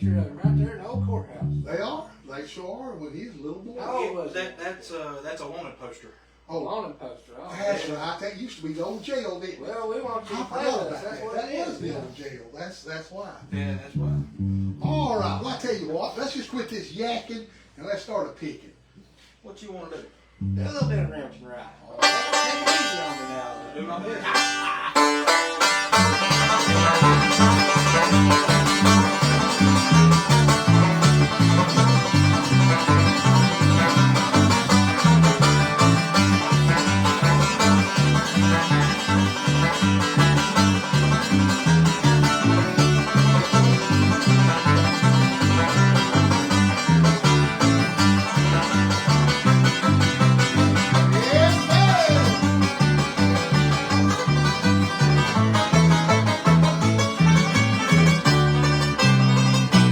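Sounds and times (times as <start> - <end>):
banjo picking: 0.0 - 1.8, 13.5 - 15.6, 20.4 - 21.2, 21.9 - 59.9
pulsing bass notes: 0.0 - 1.8, 13.5 - 15.6, 20.4 - 21.2, 24.4 - 59.9.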